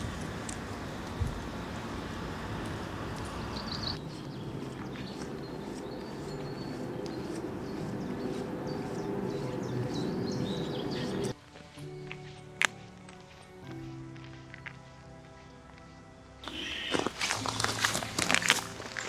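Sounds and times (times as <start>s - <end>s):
small birds chirping: 0.0s - 11.4s
steady rushing noise: 0.0s - 11.4s.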